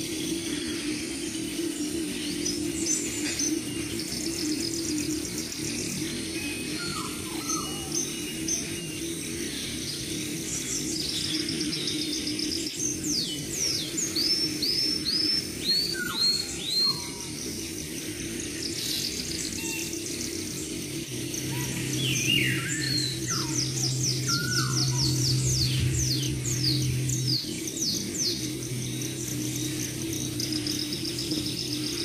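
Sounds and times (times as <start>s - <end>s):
birds chirping and trilling: 0.0s - 32.0s
bird whistling: 21.5s - 29.0s.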